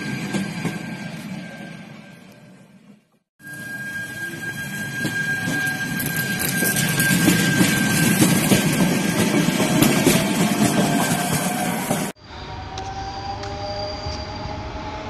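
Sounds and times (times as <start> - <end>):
train wheels rumbling: 4.0 - 15.0.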